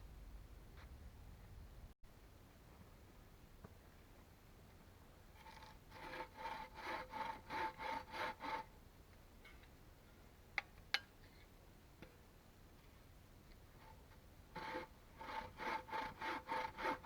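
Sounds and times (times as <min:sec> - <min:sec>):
hand saw cutting wood: 0:05.4 - 0:08.7, 0:14.6 - 0:17.0.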